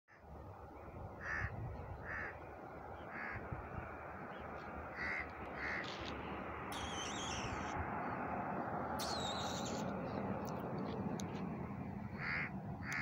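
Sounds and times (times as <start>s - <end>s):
steady background noise: 0.2s - 13.0s
bird calling: 4.9s - 6.1s, 6.7s - 7.8s, 9.0s - 11.4s, 12.1s - 13.0s.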